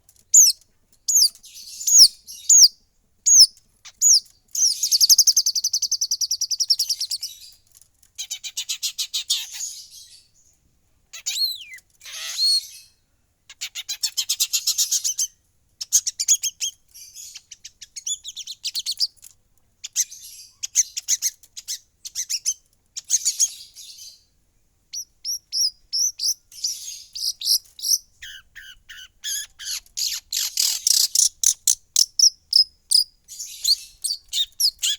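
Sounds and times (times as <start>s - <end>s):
bird singing chattering trills: 0.4s - 7.6s, 25.0s - 34.9s.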